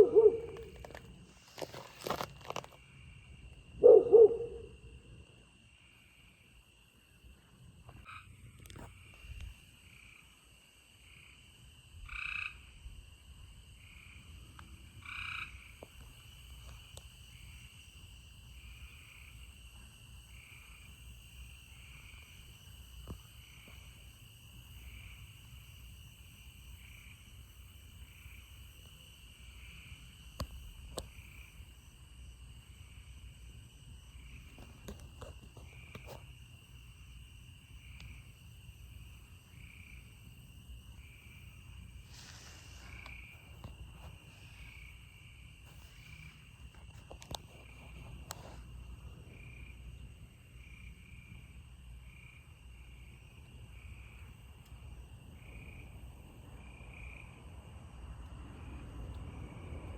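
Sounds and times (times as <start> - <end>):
frogs calling: 0.0 - 5.1, 7.9 - 10.4, 11.0 - 12.8, 13.8 - 31.9.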